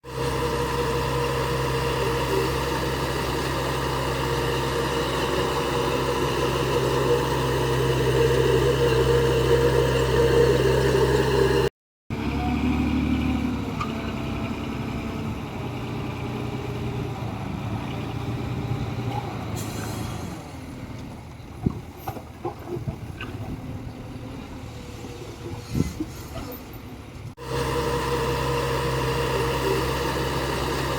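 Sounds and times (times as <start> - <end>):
heavy diesel engine running: 0.0 - 30.9.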